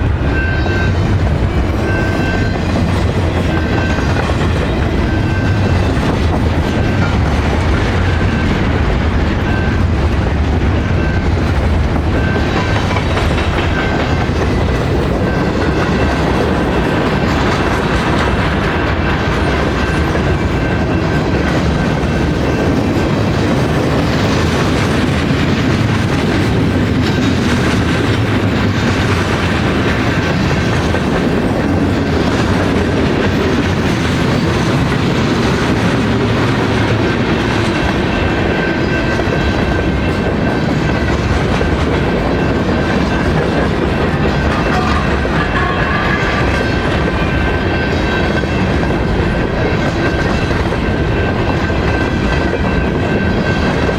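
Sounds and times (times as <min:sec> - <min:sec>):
train wheels clattering on rails: 0:00.0 - 0:53.9.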